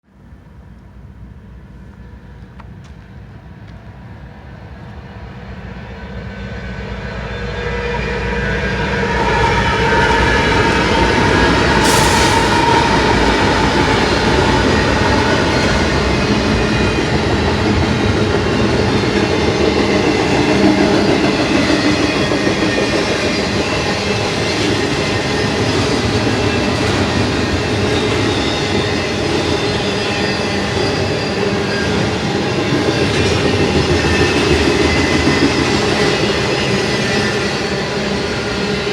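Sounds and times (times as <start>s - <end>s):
freight train passing: 0.1s - 38.9s
sharp hiss-like burst: 11.7s - 14.3s.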